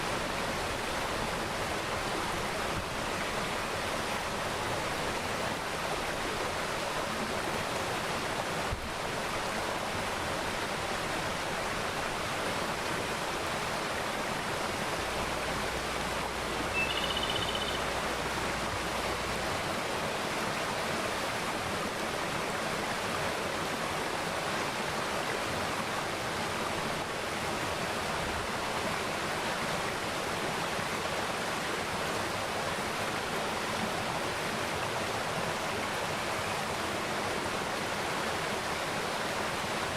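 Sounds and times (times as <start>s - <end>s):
stream water rushing: 0.0s - 39.9s
bird chirp: 16.7s - 18.0s.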